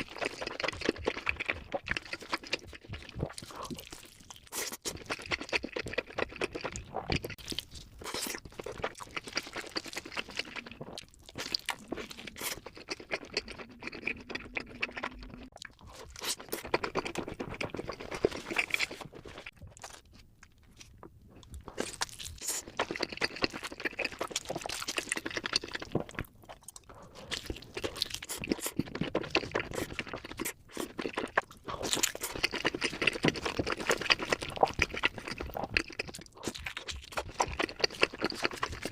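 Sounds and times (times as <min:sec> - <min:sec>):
crunchy pizza crust chewing: 0:00.0 - 0:38.9.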